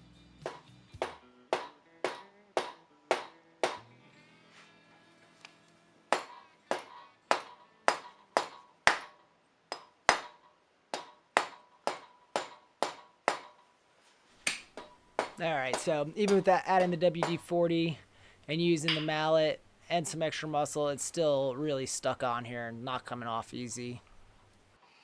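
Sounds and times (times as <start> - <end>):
mallet knocking on metal: 18.9 - 19.1.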